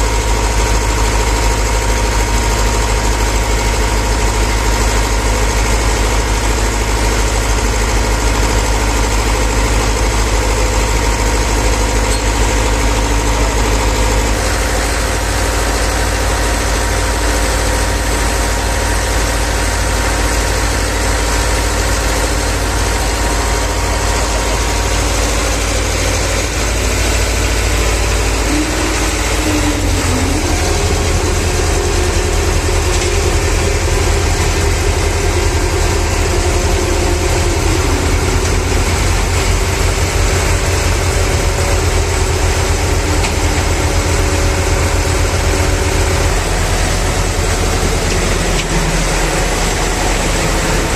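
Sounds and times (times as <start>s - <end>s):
diesel truck engine idling: 0.0s - 50.9s.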